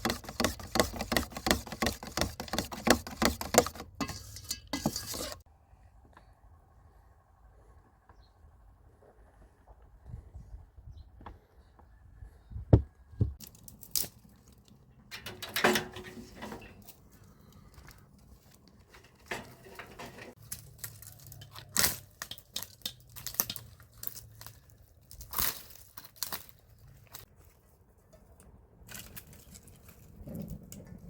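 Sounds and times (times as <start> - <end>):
rustling and crinkling packaging: 16.0 - 28.0.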